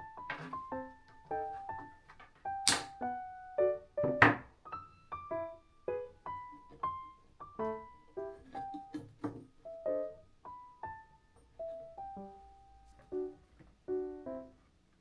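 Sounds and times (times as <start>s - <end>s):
piano melody: 0.0s - 14.8s.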